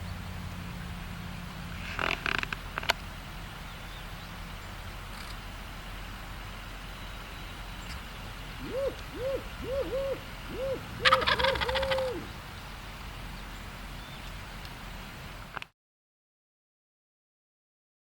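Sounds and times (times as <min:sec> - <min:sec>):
turkey gobble: 0:08.5 - 0:12.4
person hooting like an owl: 0:08.6 - 0:12.3.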